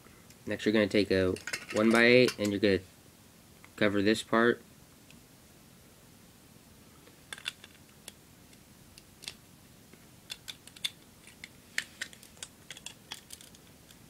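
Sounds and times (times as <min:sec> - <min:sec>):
plastic pieces clicking and clattering: 0:07.3 - 0:07.8, 0:10.3 - 0:14.0.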